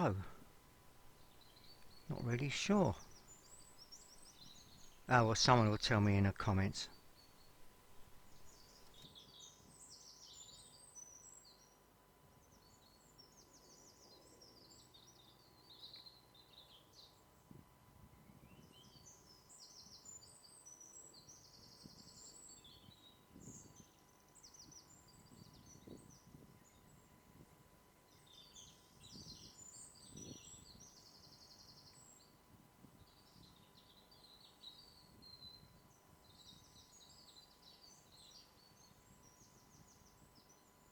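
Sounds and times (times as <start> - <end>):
small birds chirping: 0.0 - 11.8, 28.1 - 32.4, 33.0 - 40.9.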